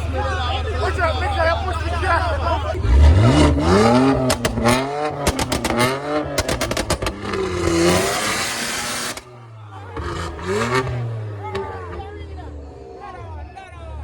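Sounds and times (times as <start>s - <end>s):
car engine revving: 1.8s - 13.4s
sharp cracks: 4.0s - 9.3s.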